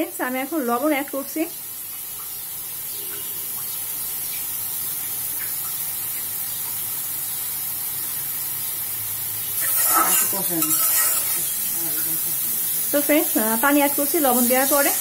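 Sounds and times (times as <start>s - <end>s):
paste sizzling in oil: 6.8s - 15.0s.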